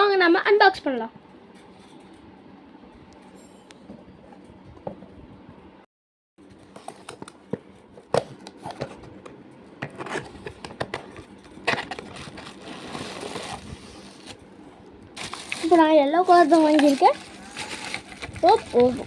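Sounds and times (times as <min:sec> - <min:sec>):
packaging rustling and crinkling: 0:10.1 - 0:14.4, 0:15.2 - 0:19.0.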